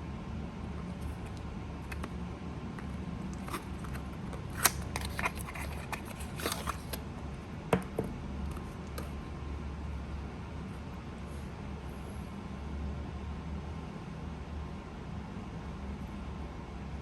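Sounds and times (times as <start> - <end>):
steady low hum: 0.0 - 17.0
object handling clicks and rustles: 2.8 - 7.0.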